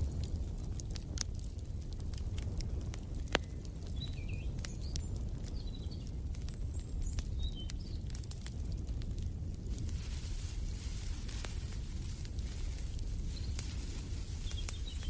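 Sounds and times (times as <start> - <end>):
sharp pops of fire: 0.0 - 15.0
wood fire crackling: 0.0 - 15.0
small birds chirping: 2.7 - 8.9, 11.0 - 15.0.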